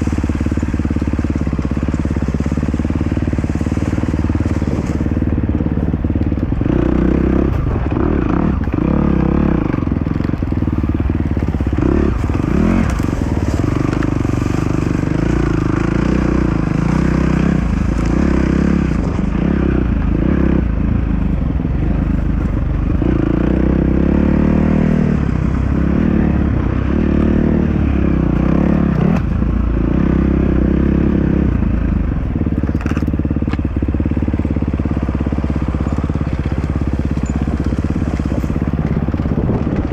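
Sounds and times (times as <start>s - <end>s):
dirt bike engine revving: 0.0s - 20.8s
rough crackling noise: 0.0s - 39.9s.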